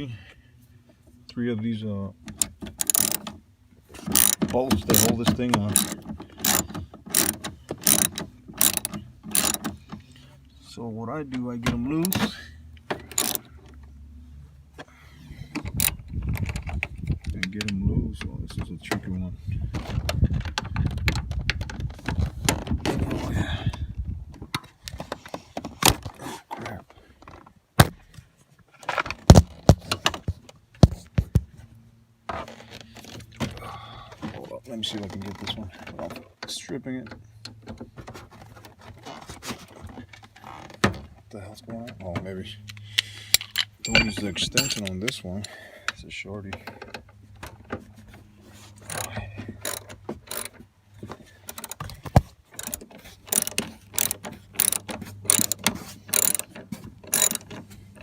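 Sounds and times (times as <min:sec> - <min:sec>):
socket wrench clicking: 0:02.3 - 0:03.3, 0:04.1 - 0:05.1, 0:05.7 - 0:09.7, 0:13.1 - 0:13.4, 0:48.8 - 0:50.6, 0:51.5 - 0:52.0, 0:52.6 - 0:56.5, 0:57.1 - 0:57.6.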